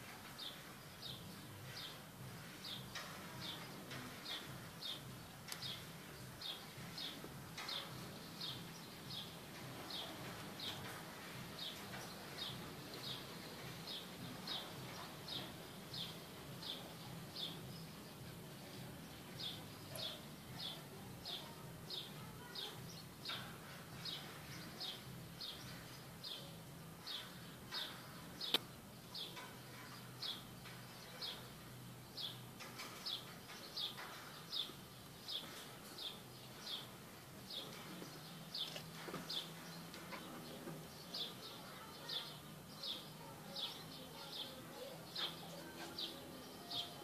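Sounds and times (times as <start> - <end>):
sharp click: 28.4 - 28.7.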